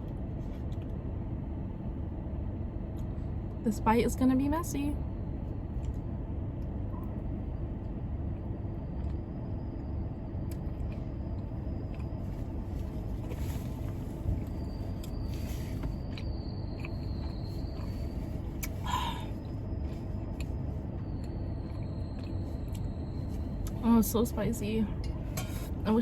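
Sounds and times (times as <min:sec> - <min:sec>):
car air conditioning running: 0:00.0 - 0:26.0
chewing clicks and smacks: 0:14.6 - 0:18.8, 0:20.0 - 0:23.8.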